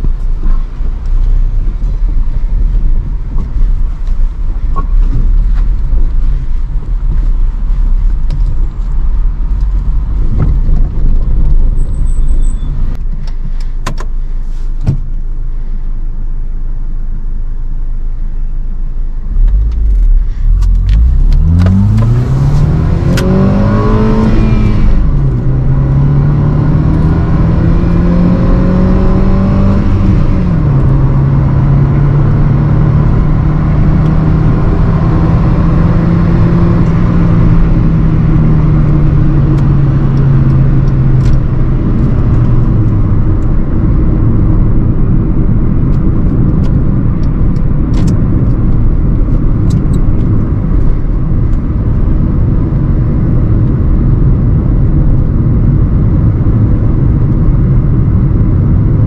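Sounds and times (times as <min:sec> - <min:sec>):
tyre and road rumble: 0:00.0 - 0:15.4, 0:18.8 - 0:59.0
car engine accelerating: 0:14.3 - 0:59.0.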